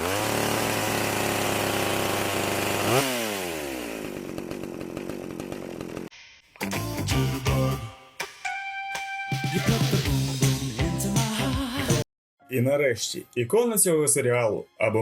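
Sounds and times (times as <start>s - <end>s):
chainsaw revving: 0.0s - 6.1s.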